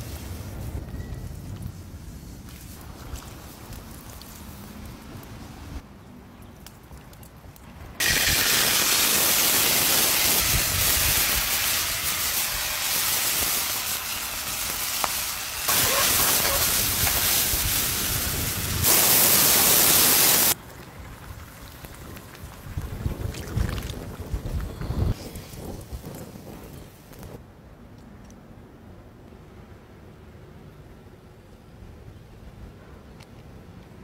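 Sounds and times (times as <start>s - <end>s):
meat sizzling loudly in a pan: 8.0s - 20.6s.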